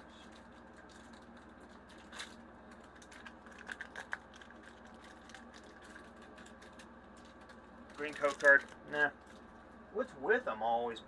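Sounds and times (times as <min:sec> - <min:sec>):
foil pack crinkling torn open: 0:00.0 - 0:09.5.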